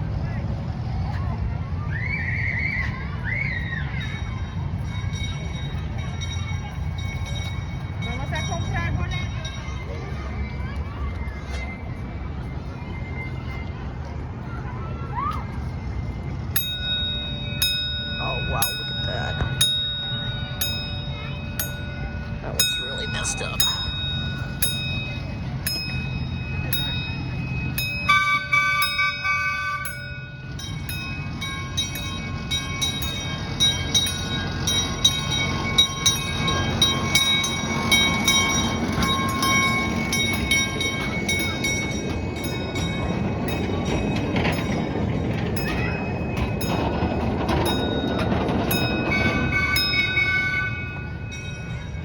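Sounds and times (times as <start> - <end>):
train wheels rumbling on track: 0.0 - 52.0
crossing bell strokes: 3.9 - 10.2, 16.1 - 52.0
train horn: 28.1 - 30.0, 49.0 - 51.2.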